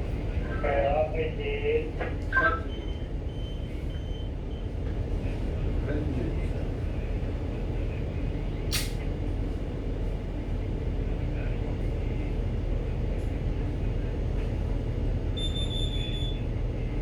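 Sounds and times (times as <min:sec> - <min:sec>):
low drone of ship engines: 0:00.0 - 0:17.0
sharp click: 0:08.7 - 0:09.0.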